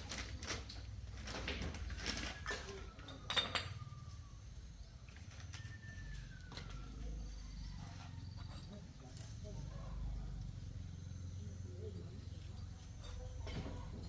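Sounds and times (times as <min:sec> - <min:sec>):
metal tools clinking and knocking: 0:02.0 - 0:04.0, 0:08.2 - 0:09.4, 0:12.4 - 0:14.0.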